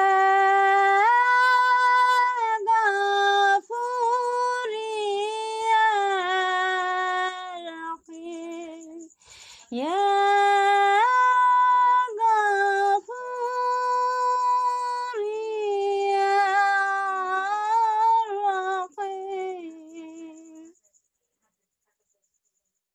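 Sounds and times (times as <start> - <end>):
woman singing solo: 0.0 - 9.0.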